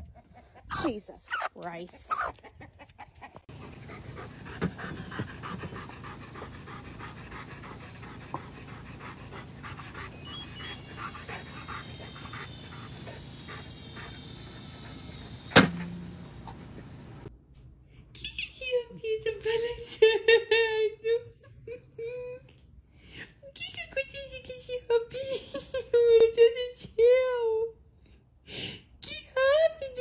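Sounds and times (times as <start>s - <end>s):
dog panting: 3.8s - 17.3s.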